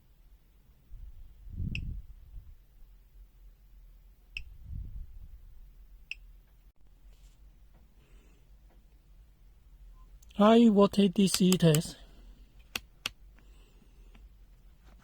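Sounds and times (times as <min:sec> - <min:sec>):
sharp clicks: 0:11.2 - 0:11.9.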